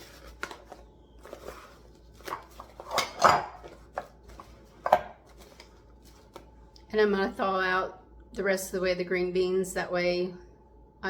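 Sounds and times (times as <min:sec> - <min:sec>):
dishware clatter: 0:02.8 - 0:03.8
dishes clinking and knocking: 0:02.8 - 0:04.1.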